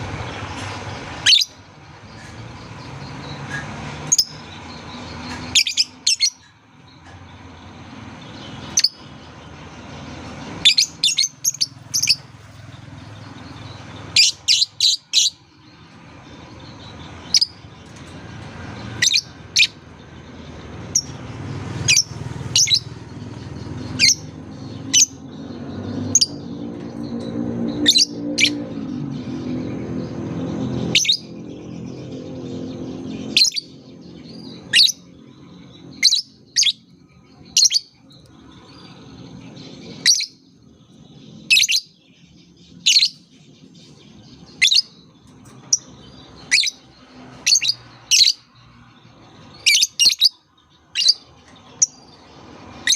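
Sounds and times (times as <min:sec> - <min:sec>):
lovebird chirps: 0:39.6 - 0:40.4.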